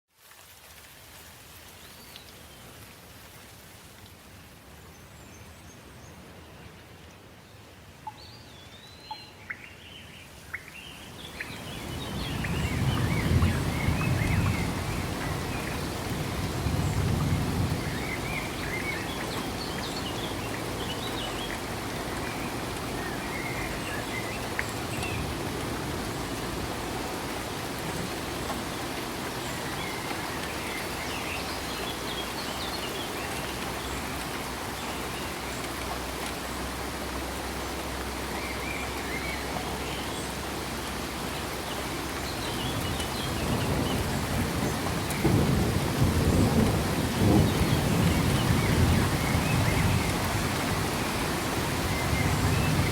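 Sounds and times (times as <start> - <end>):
steady rain falling: 0.1 - 52.9
low rolling thunder: 43.3 - 52.9.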